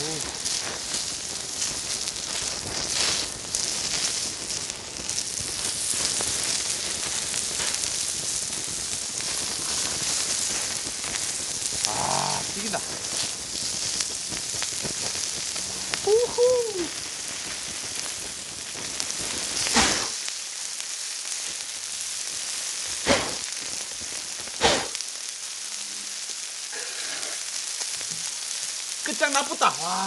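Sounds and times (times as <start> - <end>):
meat sizzling on hot stones: 0.0 - 30.0
fat spitting crackles: 11.8 - 12.6, 19.6 - 20.2, 23.0 - 23.5, 24.6 - 25.0, 26.7 - 27.5.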